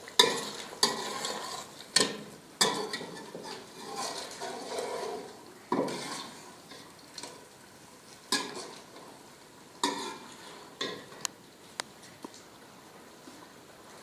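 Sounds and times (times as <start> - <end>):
faint frying sizzle: 0.0 - 14.0
metal spoon scraping cooking pot: 0.2 - 6.4, 9.8 - 11.0.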